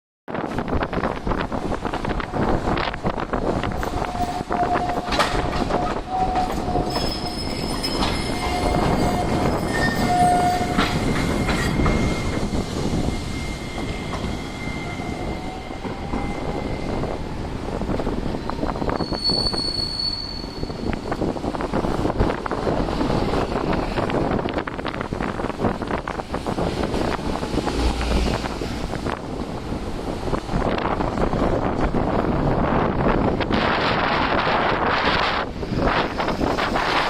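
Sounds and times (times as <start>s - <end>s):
streetcar running on track: 0.3s - 37.0s
wind rumbling on microphone: 0.3s - 37.0s
wheels squealing on rails: 0.9s - 29.5s.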